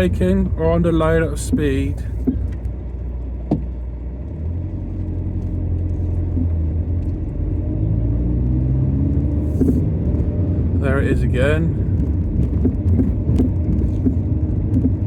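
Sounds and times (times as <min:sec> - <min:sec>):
car engine and road rumble: 0:00.0 - 0:15.0
suspension knock: 0:01.2 - 0:02.8, 0:03.4 - 0:03.8, 0:09.5 - 0:09.9, 0:11.9 - 0:15.0.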